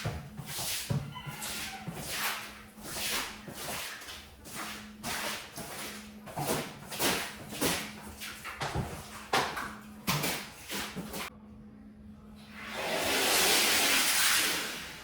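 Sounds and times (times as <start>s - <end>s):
tool scraping a wet rug: 0.0s - 11.3s.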